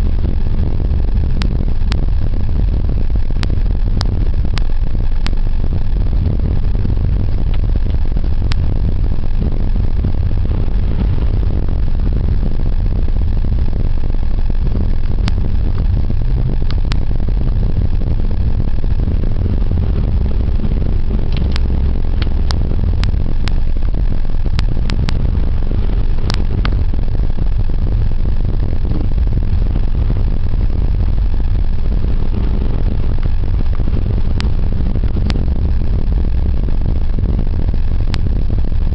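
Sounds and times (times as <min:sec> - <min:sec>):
car engine and road rumble: 0:00.0 - 0:38.9
sharp clicks: 0:20.7 - 0:23.6.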